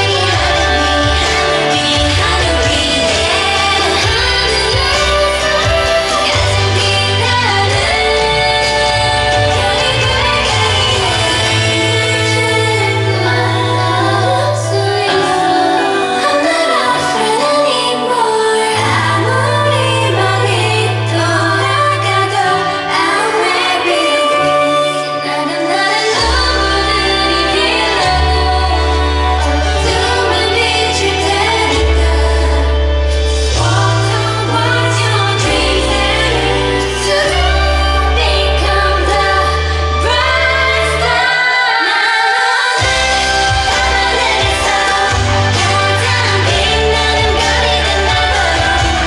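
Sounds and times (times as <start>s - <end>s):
held bass notes: 0.0s - 15.0s, 42.8s - 49.0s
female voices singing: 0.0s - 49.0s
pop backing track: 0.0s - 49.0s.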